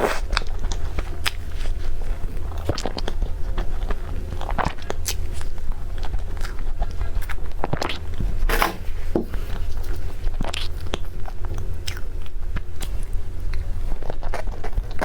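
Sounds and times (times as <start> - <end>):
person chewing crunchy food: 0.0 - 15.0.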